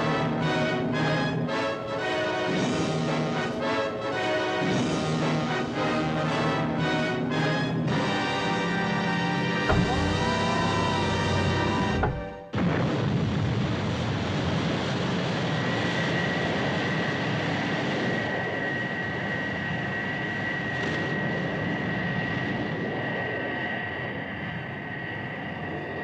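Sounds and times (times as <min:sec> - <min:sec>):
music: 0:00.0 - 0:12.6.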